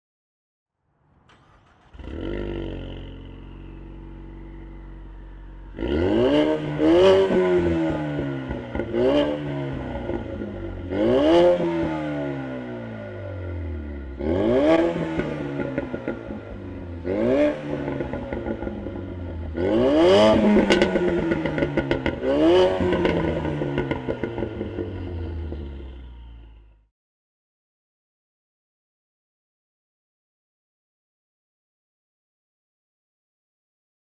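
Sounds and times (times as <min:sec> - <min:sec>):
car engine starting and revving: 0:01.1 - 0:26.9.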